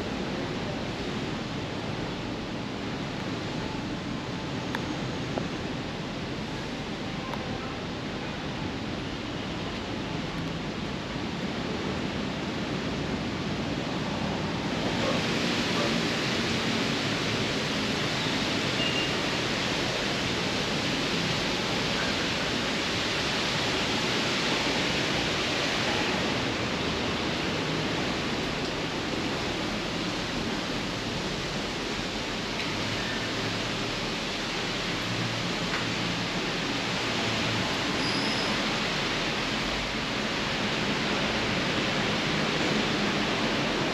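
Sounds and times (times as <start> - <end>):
heavy rain pouring: 0.0 - 43.9.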